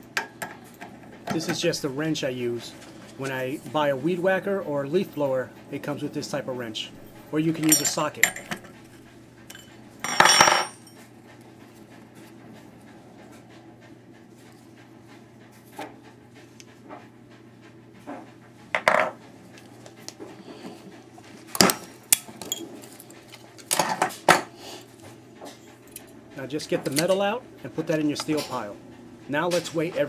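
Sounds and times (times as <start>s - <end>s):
wrench clinking on metal fittings: 7.6s - 8.6s.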